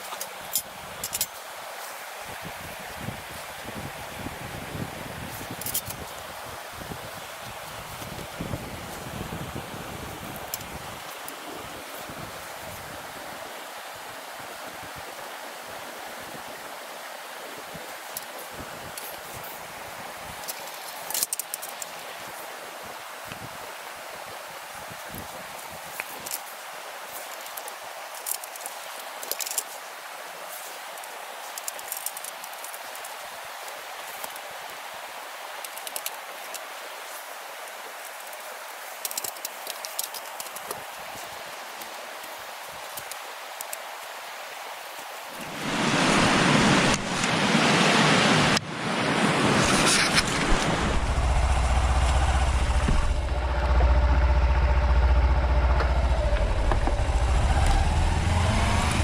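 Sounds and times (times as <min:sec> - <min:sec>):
wind buffeting microphone: 0:02.4 - 0:06.1, 0:45.4 - 0:59.0
motorcycle engine idling: 0:51.0 - 0:58.2.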